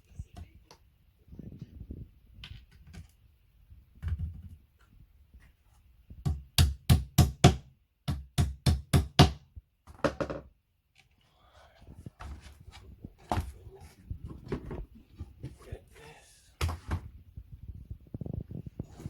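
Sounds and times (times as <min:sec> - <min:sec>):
knocks on furniture parts: 0:06.2 - 0:10.5.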